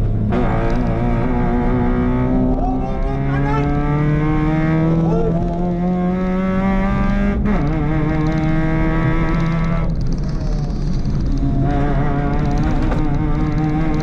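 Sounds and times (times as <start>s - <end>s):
rally car engine accelerating: 0.0s - 14.0s.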